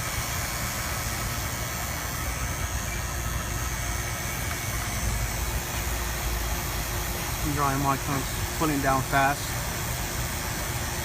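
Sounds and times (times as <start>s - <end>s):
vacuum pump running: 0.0s - 11.0s.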